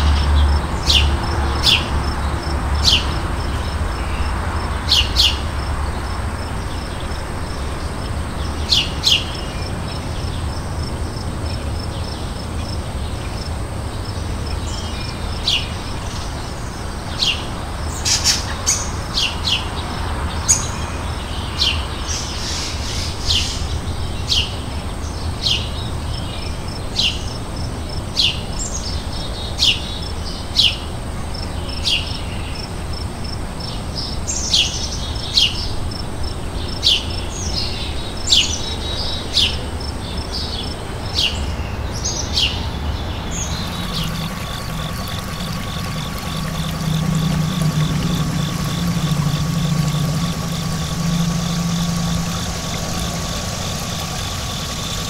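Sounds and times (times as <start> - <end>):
songbird chirping: 43.2 - 55.0
low background rumble: 43.5 - 55.0.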